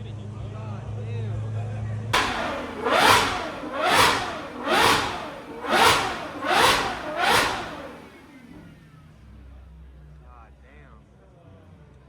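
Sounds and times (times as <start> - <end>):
car engine revving hard: 2.2 - 8.6.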